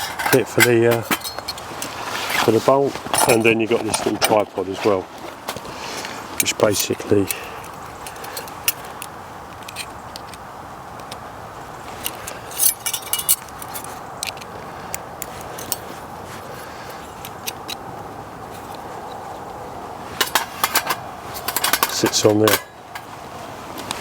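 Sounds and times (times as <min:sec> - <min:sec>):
background hiss: 0:00.0 - 0:24.0
light metal clinks and taps: 0:12.0 - 0:14.5.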